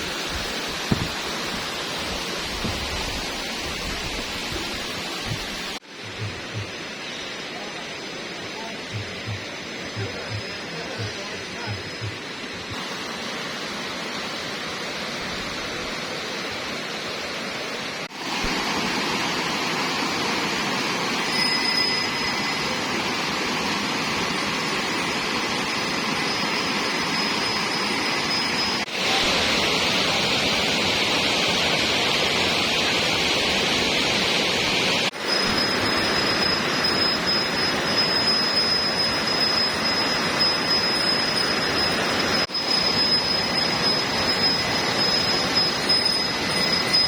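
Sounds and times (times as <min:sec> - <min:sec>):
waterfall rushing: 0:22.0 - 0:47.0.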